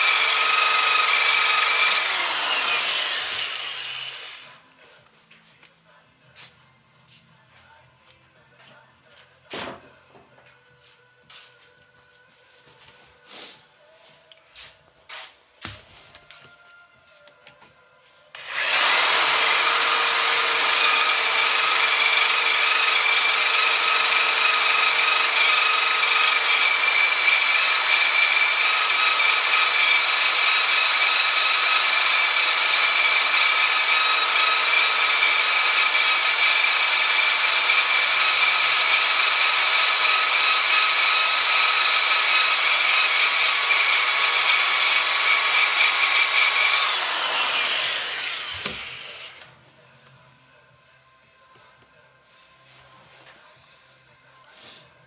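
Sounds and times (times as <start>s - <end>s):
power tool whining on steel: 0.0s - 4.6s, 18.4s - 49.6s.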